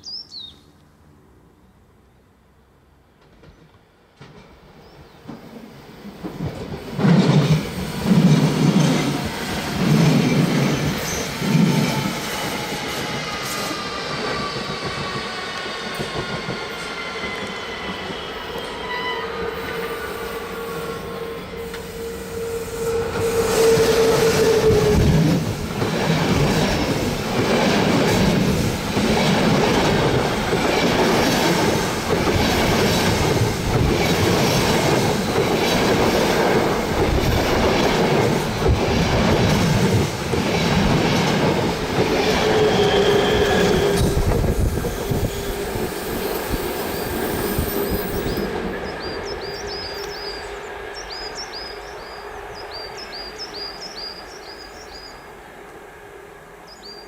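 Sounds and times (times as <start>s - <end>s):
train rolling noise: 2.8s - 57.0s
train wheels squealing: 7.4s - 25.4s, 42.0s - 55.2s.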